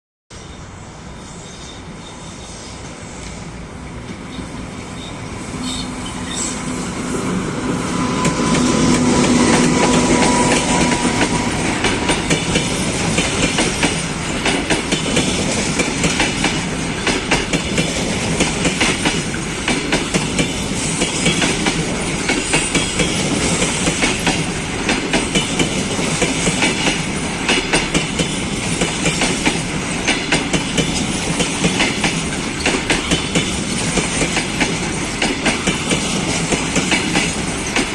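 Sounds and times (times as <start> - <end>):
electric locomotive humming: 0.4 - 37.9
train wheels clicking over rail joints: 7.6 - 37.9.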